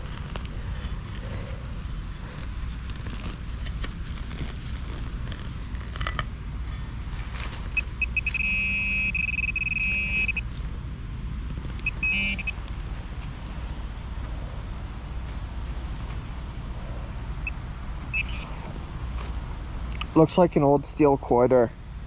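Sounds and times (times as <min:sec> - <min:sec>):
metal detector pulsing tone: 0:07.8 - 0:10.4, 0:11.8 - 0:12.6, 0:17.4 - 0:18.5
metal detector short beeps: 0:07.8 - 0:10.4, 0:11.8 - 0:12.6, 0:18.1 - 0:18.5.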